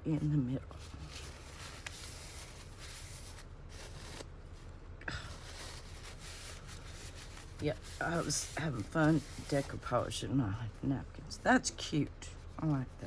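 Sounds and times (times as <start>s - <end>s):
paper rustling: 0.7s - 10.1s.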